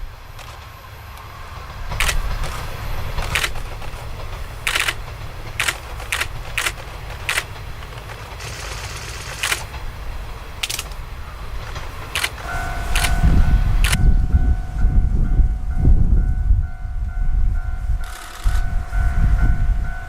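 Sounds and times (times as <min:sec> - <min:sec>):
wheels clacking over rail joints: 0:00.0 - 0:14.2
railcars rumbling past: 0:00.0 - 0:20.0.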